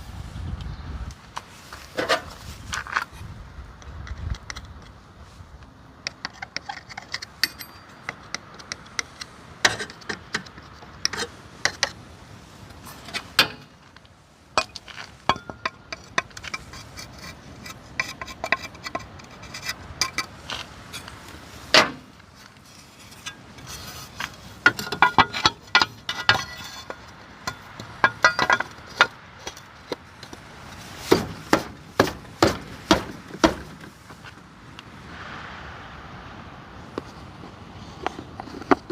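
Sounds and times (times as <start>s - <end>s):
metal parts clicking and tapping: 6.0s - 12.0s, 14.6s - 20.4s, 23.0s - 30.5s.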